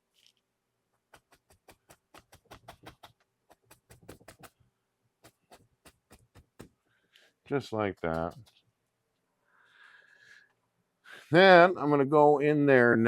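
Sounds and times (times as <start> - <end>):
brush tapping on canvas: 1.1 - 4.6, 5.2 - 6.8, 7.5 - 8.6.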